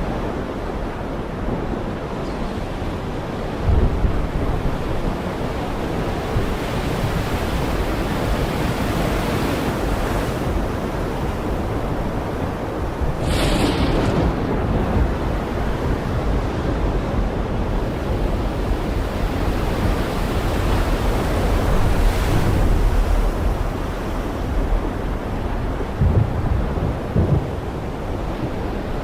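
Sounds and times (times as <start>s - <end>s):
heavy rain falling: 13.1s - 15.6s.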